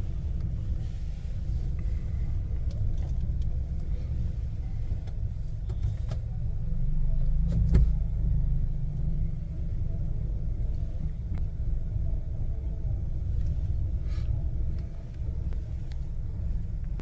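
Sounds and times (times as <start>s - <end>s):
car driving rumble: 0.0s - 17.0s.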